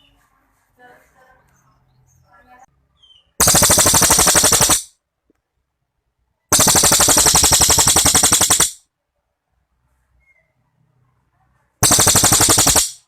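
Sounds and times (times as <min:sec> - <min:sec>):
songbird rattling trills: 0:03.4 - 0:04.9, 0:06.5 - 0:08.8, 0:11.8 - 0:13.0.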